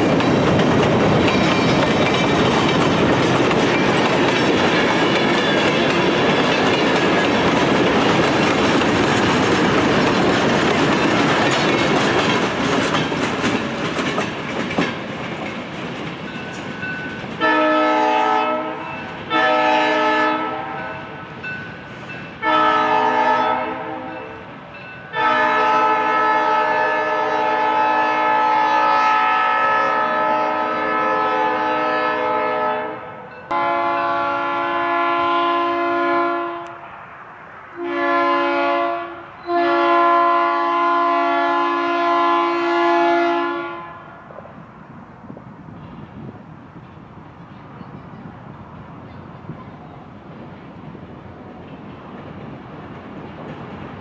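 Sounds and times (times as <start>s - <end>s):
train wheels clattering: 0.0s - 17.7s, 48.8s - 54.0s
distant locomotive air horn: 17.4s - 21.4s, 22.4s - 24.5s, 25.1s - 37.0s, 37.8s - 44.3s.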